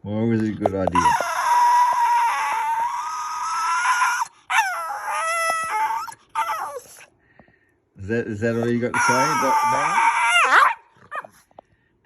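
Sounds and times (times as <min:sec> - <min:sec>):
dog howling high-pitched: 0:01.0 - 0:07.0, 0:08.9 - 0:11.4.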